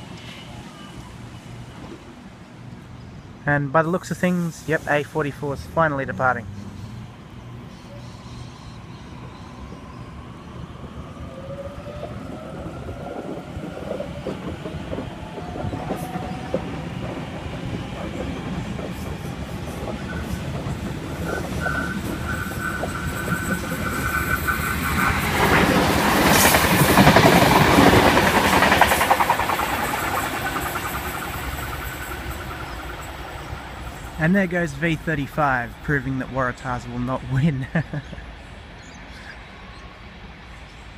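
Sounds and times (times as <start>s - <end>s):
train wheels clattering over rail joints: 13.2s - 34.1s.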